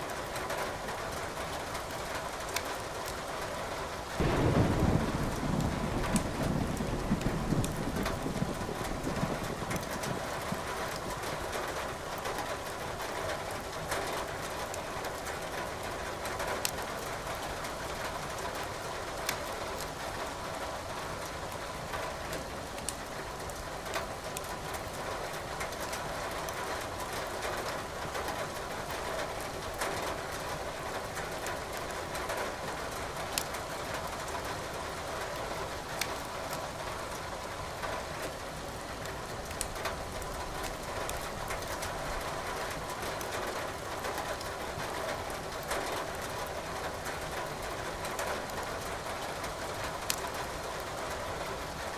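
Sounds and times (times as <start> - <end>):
falling rain hiss: 0.0 - 51.9
wood fire crackling: 34.8 - 49.2, 49.9 - 51.0.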